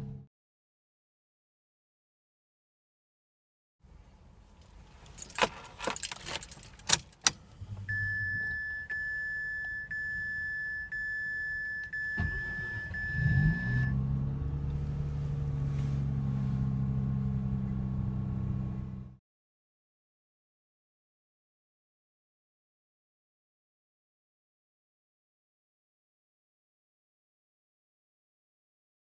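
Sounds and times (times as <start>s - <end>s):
keys jangling in ignition: 4.6s - 7.4s
car warning chime: 7.8s - 14.0s.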